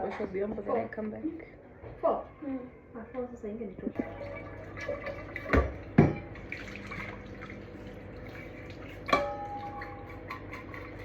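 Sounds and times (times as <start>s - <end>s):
low steady hum: 2.2s - 11.0s
water running at a sink: 3.8s - 11.0s.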